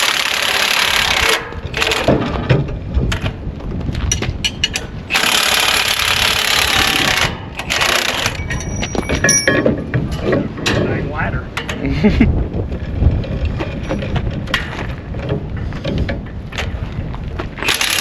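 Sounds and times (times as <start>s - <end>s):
metal knocks and clinks: 7.6s - 11.0s, 13.4s - 16.4s
ringing metal clinks: 8.3s - 9.9s.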